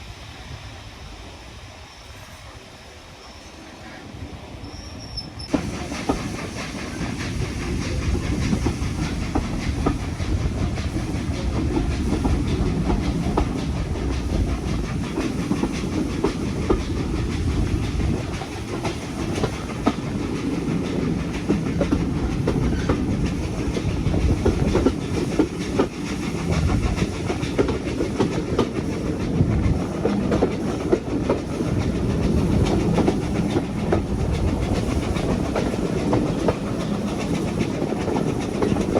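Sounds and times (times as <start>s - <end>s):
steam train rumbling: 0.0s - 38.9s
wheels clacking over rail joints: 5.5s - 38.9s.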